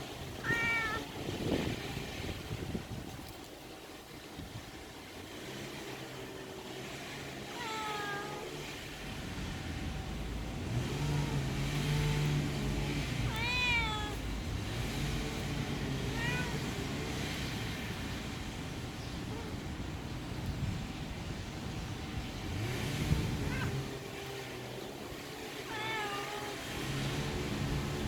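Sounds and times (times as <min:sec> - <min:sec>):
cat meowing: 0:00.4 - 0:01.2, 0:07.5 - 0:08.5, 0:10.9 - 0:14.6, 0:15.4 - 0:16.9, 0:23.3 - 0:23.9, 0:25.6 - 0:26.8.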